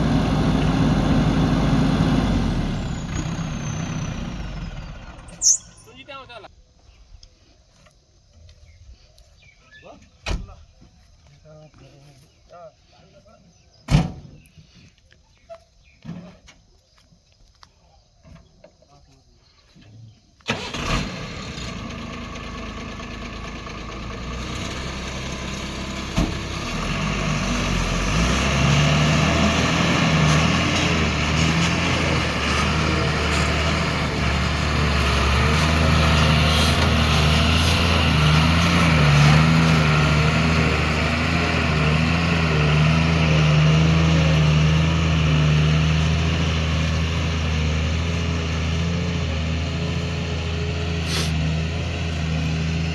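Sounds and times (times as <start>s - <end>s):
heavy diesel engine droning: 0.0s - 5.9s, 20.5s - 52.9s.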